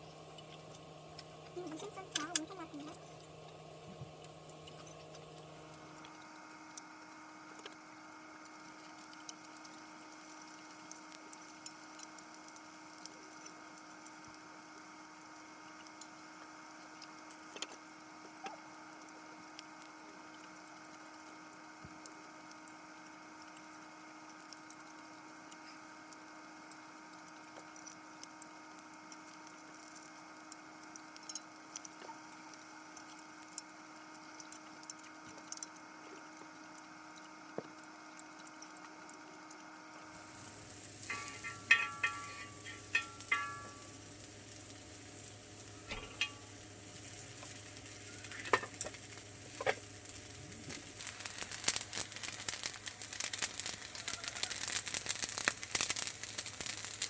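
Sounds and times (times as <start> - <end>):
food sizzling in a pan: 0.0 - 57.0
utensils clinking: 41.1 - 43.9.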